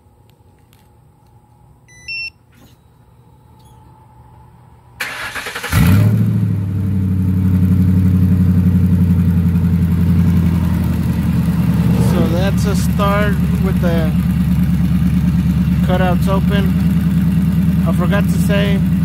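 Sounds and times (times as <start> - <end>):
engine idling loudly: 6.8 - 19.0.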